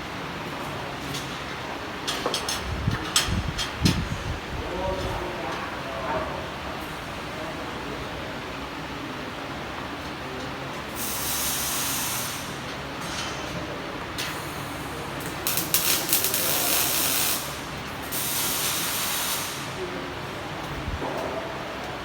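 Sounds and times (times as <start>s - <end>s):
welding arc hissing and crackling: 10.9s - 12.7s, 14.2s - 19.8s.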